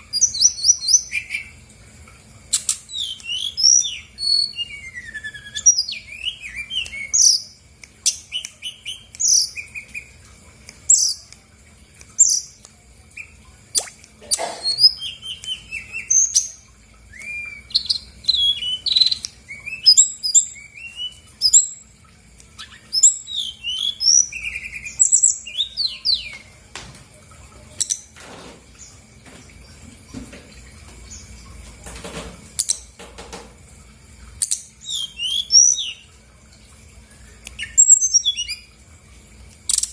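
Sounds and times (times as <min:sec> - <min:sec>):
bird singing chirps and whistles: 0:00.1 - 0:01.5, 0:02.5 - 0:10.2, 0:12.2 - 0:12.6, 0:13.2 - 0:14.0, 0:14.6 - 0:21.9, 0:22.6 - 0:26.5, 0:34.4 - 0:36.1, 0:37.2 - 0:38.7.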